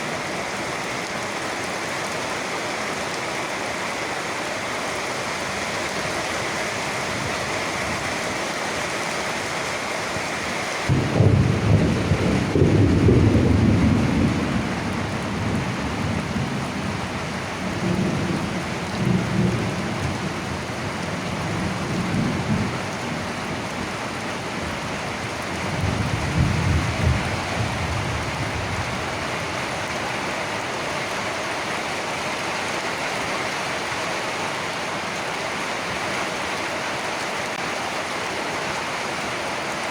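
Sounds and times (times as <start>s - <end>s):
steady rain: 0.0s - 39.9s
thunder crack and rumble: 10.9s - 16.8s, 25.6s - 29.0s.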